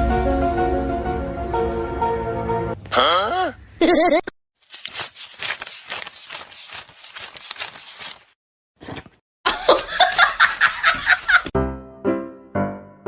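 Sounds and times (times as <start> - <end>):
person laughing: 2.9 - 4.3, 9.5 - 11.5.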